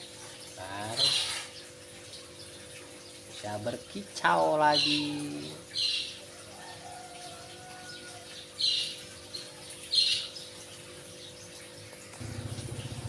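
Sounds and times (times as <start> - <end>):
small engine pulsing: 12.2 - 13.0.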